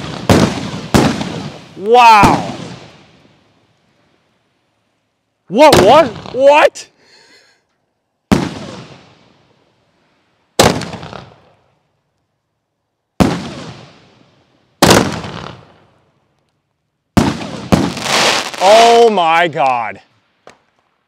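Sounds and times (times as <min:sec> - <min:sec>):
firework bangs: 0:00.0 - 0:03.5, 0:05.6 - 0:06.5, 0:08.2 - 0:09.6, 0:10.5 - 0:11.6, 0:13.2 - 0:16.0, 0:17.1 - 0:19.0.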